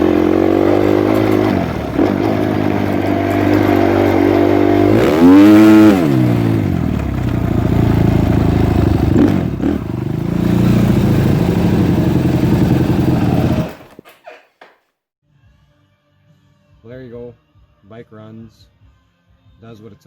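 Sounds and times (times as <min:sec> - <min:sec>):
motocross engine revving: 0:00.0 - 0:14.7.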